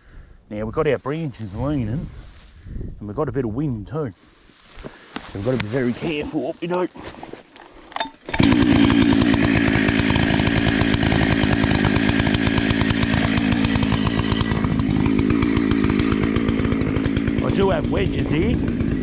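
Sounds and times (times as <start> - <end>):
chainsaw running: 8.0 - 19.0.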